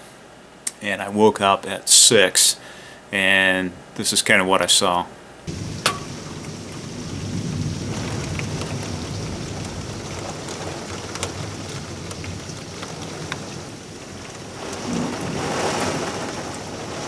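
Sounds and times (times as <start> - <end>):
heavy rain pouring: 5.5 - 17.0
low rumble of thunder: 5.5 - 17.0
sharp raindrops: 5.5 - 17.0.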